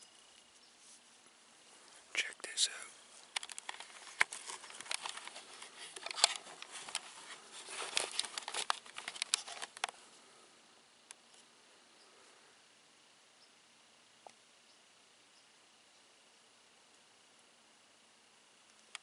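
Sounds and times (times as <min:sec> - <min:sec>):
crinkly rustling and handling: 0:00.2 - 0:10.2.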